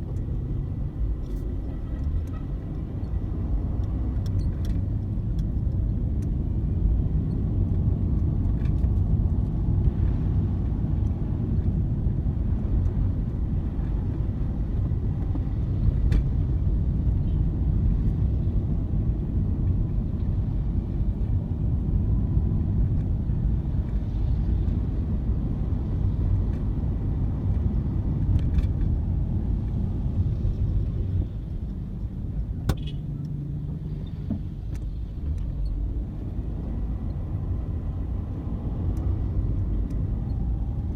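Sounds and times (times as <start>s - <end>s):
car rumbling on road: 0.0s - 40.9s.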